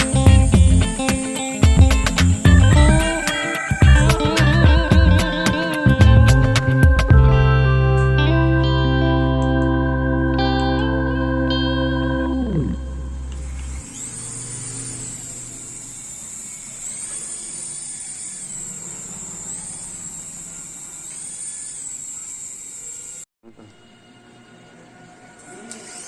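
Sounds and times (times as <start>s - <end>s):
small electric motors whining: 0.0s - 6.7s, 12.6s - 23.3s, 24.8s - 26.0s.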